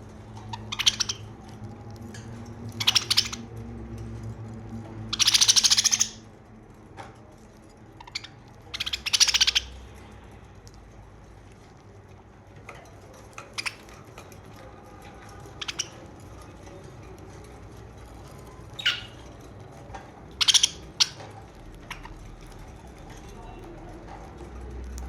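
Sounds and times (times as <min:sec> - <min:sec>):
faint background noise: 0:00.0 - 0:25.0
budgerigars chirping: 0:00.5 - 0:01.3, 0:02.7 - 0:03.5, 0:05.1 - 0:06.2, 0:08.0 - 0:09.8, 0:13.5 - 0:14.0, 0:15.6 - 0:16.1, 0:18.7 - 0:19.2, 0:20.3 - 0:21.2.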